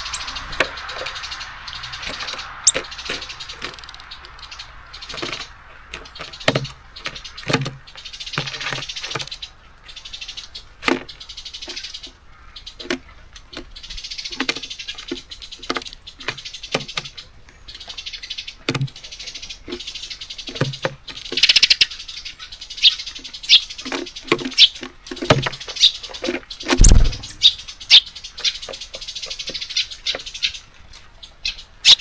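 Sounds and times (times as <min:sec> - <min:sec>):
beaks tapping on bird feeder: 0:00.0 - 0:10.0, 0:23.5 - 0:27.6
birds rustling in seeds: 0:00.0 - 0:32.0.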